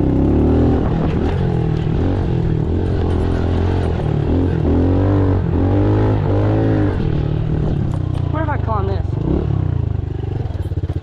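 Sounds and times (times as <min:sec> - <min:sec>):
small motorbike engine revving: 0:00.0 - 0:11.0.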